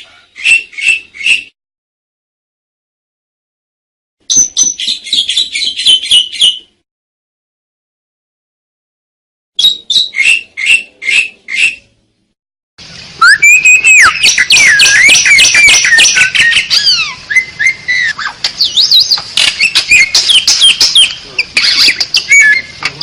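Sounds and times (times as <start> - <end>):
starling calling: 0.0 - 1.5, 13.2 - 23.0
starling song of whistles: 4.3 - 6.7, 9.6 - 11.9, 13.2 - 22.8.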